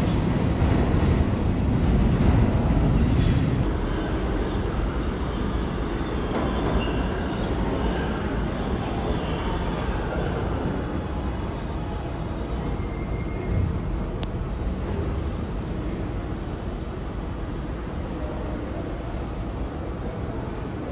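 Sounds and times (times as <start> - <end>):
subway train rumbling on rails: 0.0 - 20.9.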